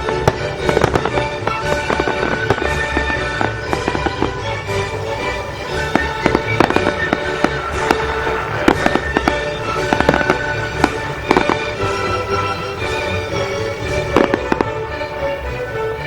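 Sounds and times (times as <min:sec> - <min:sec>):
fireworks bangs and crackles: 0:00.0 - 0:16.0
music playing: 0:00.0 - 0:16.0.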